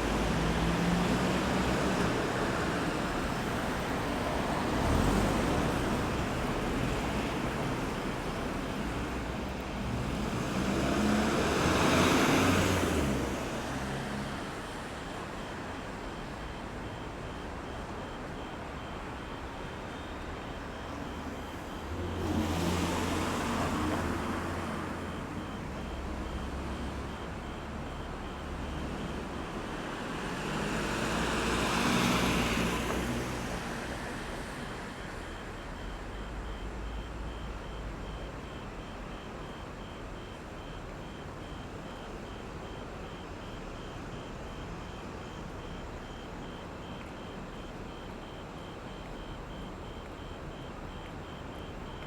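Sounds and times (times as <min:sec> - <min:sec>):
vehicles driving past: 0:00.0 - 0:38.9
hum of traffic: 0:00.0 - 0:52.0
faint high beep: 0:34.9 - 0:52.0.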